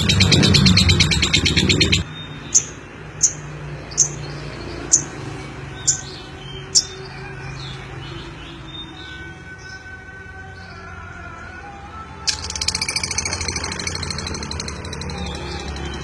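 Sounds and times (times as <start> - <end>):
lovebird chirping: 0.0 - 4.2, 12.3 - 16.0.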